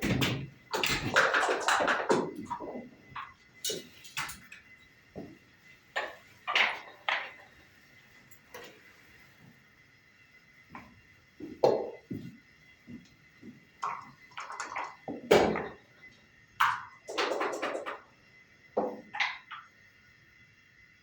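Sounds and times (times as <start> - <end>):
checkers and dice clacking on wood: 0.8 - 4.4, 16.6 - 18.1.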